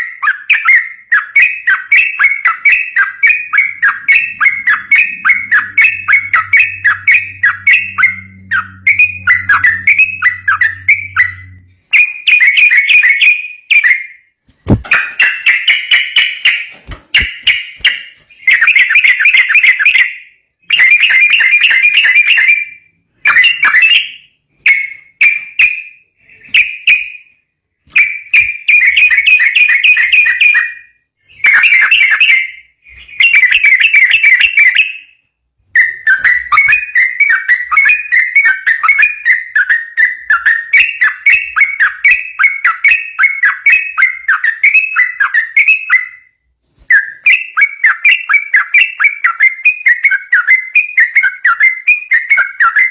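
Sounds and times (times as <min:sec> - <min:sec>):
bird singing chattering notes: 0:00.2 - 0:14.0.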